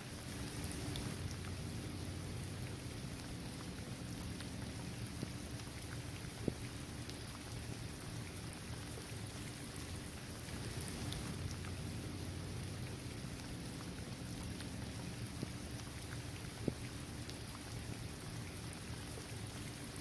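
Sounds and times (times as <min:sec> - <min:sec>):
raindrops ticking: 0:00.0 - 0:20.0
steady rain falling: 0:00.0 - 0:20.0.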